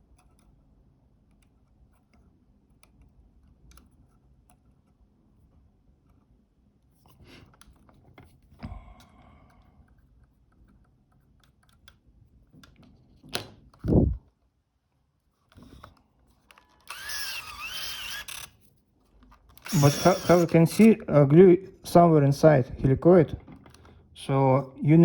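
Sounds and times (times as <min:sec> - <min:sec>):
camera and tools clicking: 0:15.4 - 0:21.0.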